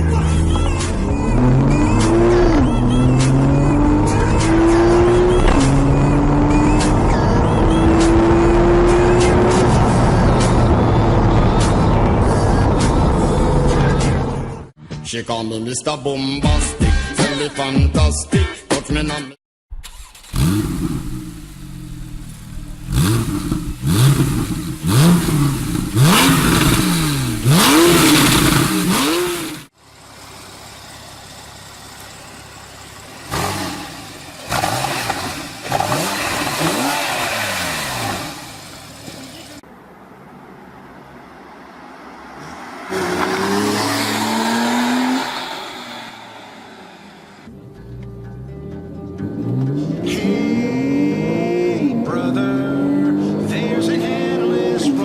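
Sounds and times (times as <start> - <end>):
car engine revving hard: 1.3 - 11.4, 20.1 - 29.7, 33.2 - 39.4, 42.4 - 47.4.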